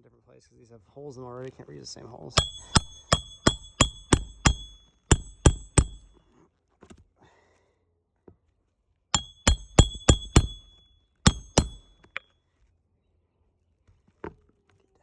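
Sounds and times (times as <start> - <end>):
hammer driving nails: 2.4 - 6.1, 9.2 - 12.2.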